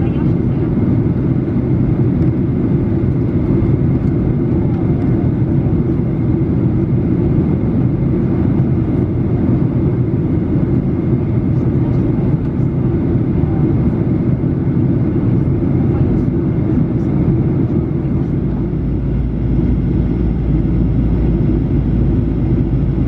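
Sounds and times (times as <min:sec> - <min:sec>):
airplane cabin engine roar: 0:00.0 - 0:23.0.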